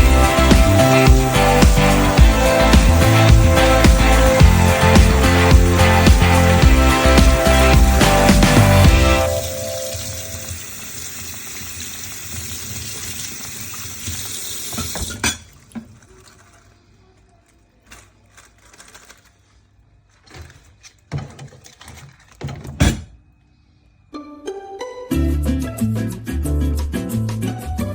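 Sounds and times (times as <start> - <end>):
tap running into sink: 9.8 - 16.0.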